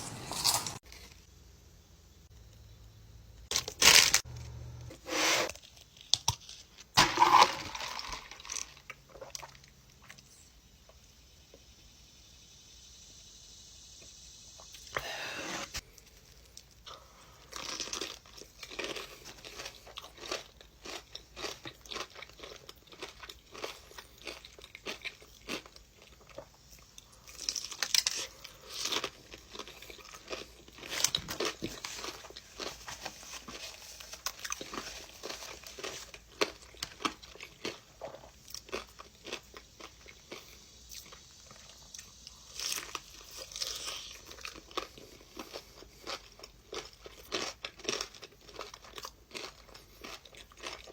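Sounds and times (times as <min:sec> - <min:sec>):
crunchy food chewing: 0:00.0 - 0:01.2, 0:15.8 - 0:50.9.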